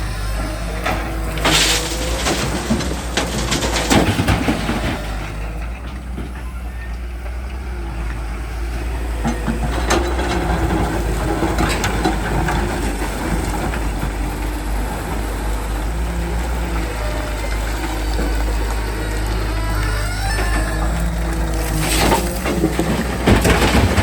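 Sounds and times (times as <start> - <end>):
diesel engine running: 0.0 - 24.0
bucket knocks and clanks: 21.8 - 24.0.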